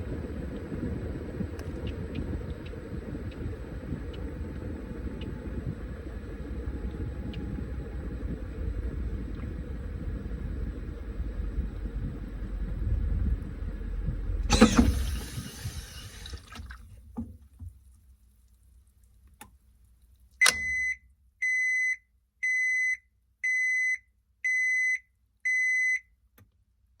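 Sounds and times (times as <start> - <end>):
washing machine drum rumble: 0.0 - 17.8
washing machine clunk: 14.5 - 17.7.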